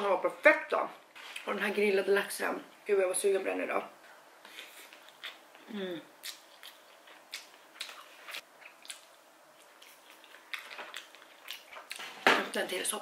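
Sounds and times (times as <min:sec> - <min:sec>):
person chewing: 0:04.4 - 0:12.2.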